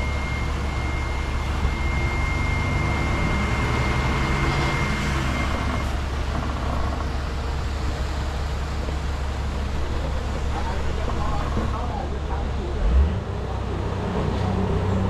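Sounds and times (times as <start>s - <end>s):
high whine: 0.0s - 11.8s
diesel engine rumbling: 0.0s - 15.0s.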